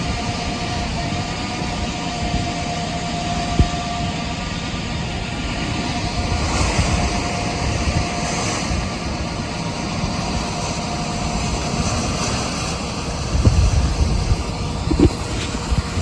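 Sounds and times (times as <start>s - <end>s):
faint steady whine: 0.0s - 16.0s
farm vehicle engine rumbling: 12.4s - 16.0s.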